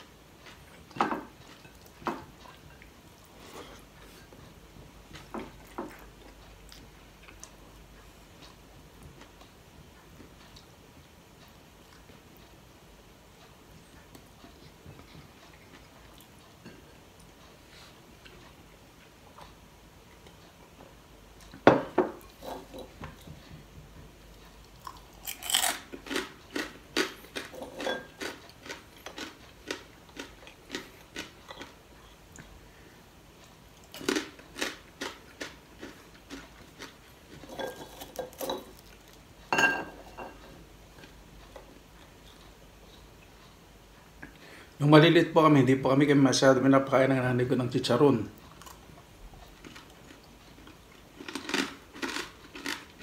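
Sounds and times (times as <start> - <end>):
crunching of crisp food being chewed: 0.4 - 4.5, 5.1 - 9.5, 13.8 - 19.6, 24.3 - 32.6, 33.4 - 39.4, 48.4 - 53.0
plates clinking: 27.5 - 28.2, 37.5 - 38.8, 39.5 - 40.4.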